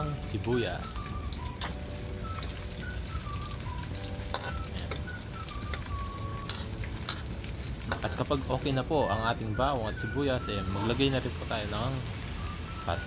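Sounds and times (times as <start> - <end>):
garlic and onion sizzling in oil: 0.0 - 13.0
metal spoon scraping a wok: 4.3 - 4.9, 6.4 - 8.1.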